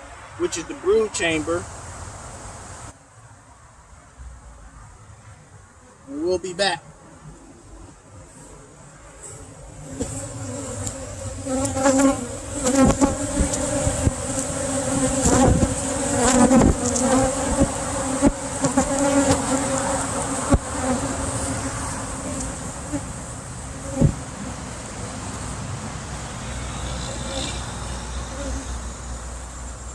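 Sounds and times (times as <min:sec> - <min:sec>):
bees buzzing: 0:07.0 - 0:29.9
knocks on beehive: 0:24.0 - 0:24.2.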